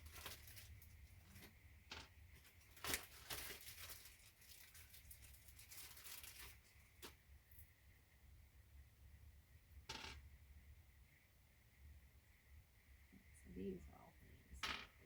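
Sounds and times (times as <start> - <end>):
plastic bag rustling: 0.0 - 1.6, 2.3 - 7.6
steady low hum: 7.2 - 14.7.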